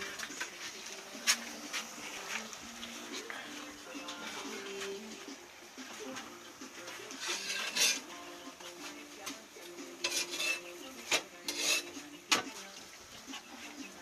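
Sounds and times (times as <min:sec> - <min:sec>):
metal utensil scraping a griddle: 0:06.8 - 0:09.0, 0:09.8 - 0:12.7.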